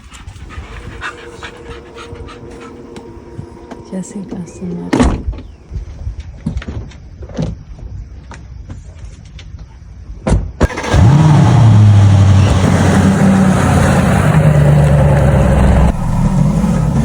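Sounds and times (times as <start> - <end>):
vehicle engine starting and running: 0.4 - 5.3, 10.6 - 17.0.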